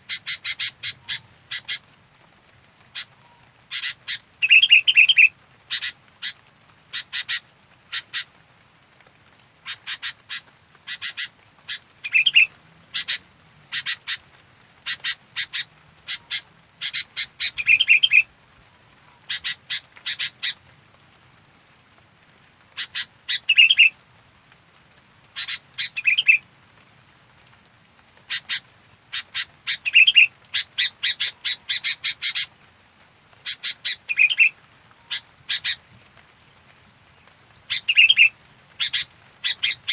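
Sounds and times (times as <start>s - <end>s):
bird chattering calls: 0.0s - 1.9s, 2.9s - 8.3s, 9.6s - 14.2s, 14.8s - 18.3s, 19.2s - 20.6s, 22.8s - 24.0s, 25.4s - 26.4s, 28.3s - 32.5s, 33.4s - 35.8s, 37.7s - 39.9s.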